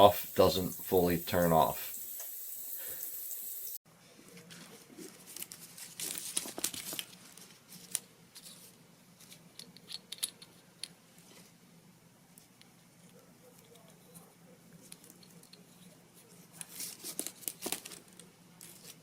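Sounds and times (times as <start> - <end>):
shower head spraying water: 0.0 - 3.8.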